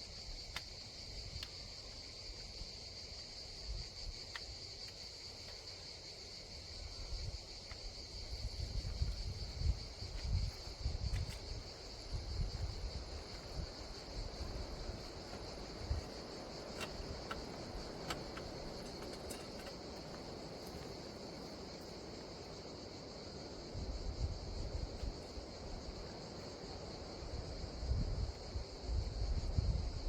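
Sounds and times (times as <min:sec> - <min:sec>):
insects chirring: 0:00.0 - 0:30.0
wind buffeting microphone: 0:06.7 - 0:21.8, 0:23.6 - 0:26.2, 0:27.0 - 0:30.0.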